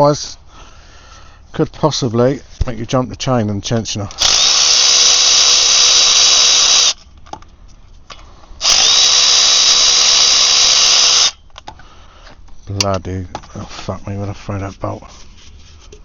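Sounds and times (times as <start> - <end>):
impact wrench spinning bolts: 4.1 - 7.0, 8.6 - 11.4.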